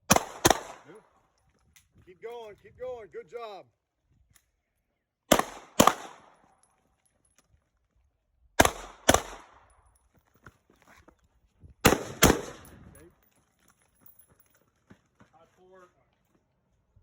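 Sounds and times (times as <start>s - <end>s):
gunshots: 0.0s - 1.0s, 5.3s - 6.4s, 8.6s - 9.6s, 11.8s - 12.8s.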